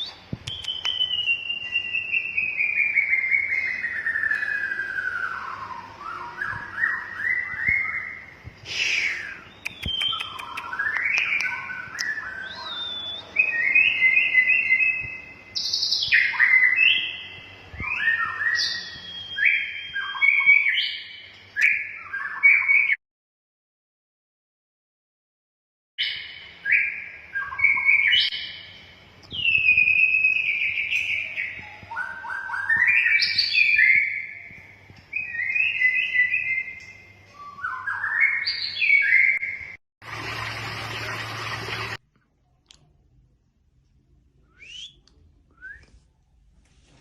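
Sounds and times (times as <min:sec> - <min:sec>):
bird singing whistled phrases: 0:00.0 - 0:23.0, 0:26.0 - 0:39.8, 0:44.5 - 0:45.0.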